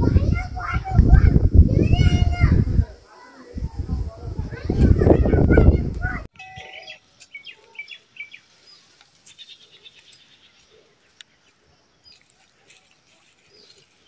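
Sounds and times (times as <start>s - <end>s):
bird chirping: 6.4s - 14.0s.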